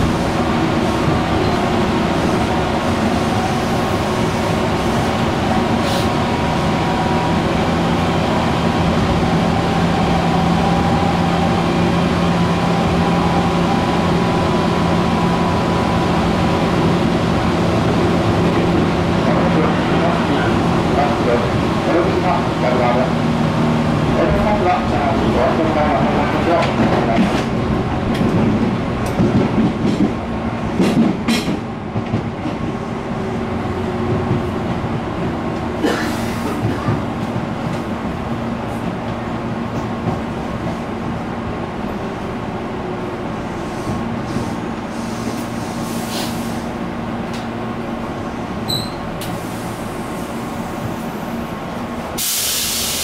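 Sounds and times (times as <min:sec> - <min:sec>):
train interior rumble: 0:00.0 - 0:53.0
air brakes hissing: 0:05.8 - 0:06.2, 0:35.8 - 0:36.6, 0:43.6 - 0:46.7, 0:48.7 - 0:50.4, 0:52.2 - 0:53.0.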